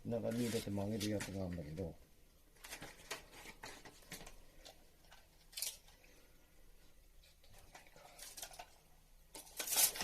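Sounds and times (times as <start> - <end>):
clicks and scrapes of handling piping: 2.6 - 6.1, 7.2 - 10.0.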